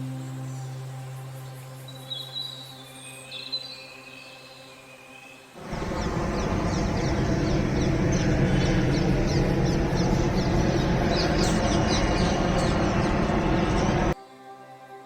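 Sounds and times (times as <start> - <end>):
flock of birds chirping: 1.4 - 14.2
loud steady rushing noise: 5.6 - 14.2.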